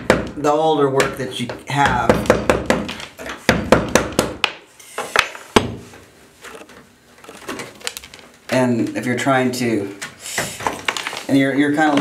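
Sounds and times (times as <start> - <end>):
hammer and chisel knocking on tile: 0.0 - 5.8.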